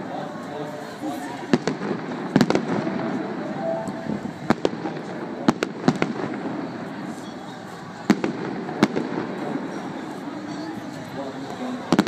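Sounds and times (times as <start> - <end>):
fireworks bangs: 1.5 - 6.7.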